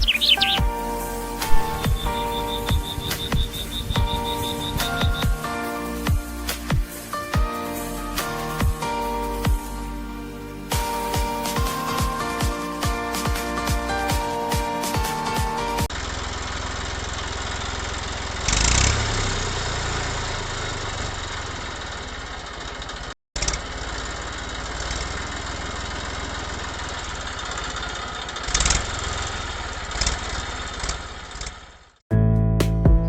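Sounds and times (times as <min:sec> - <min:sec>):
music: 0:00.0 - 0:15.9, 0:32.1 - 0:33.0
small engine running: 0:15.9 - 0:31.9.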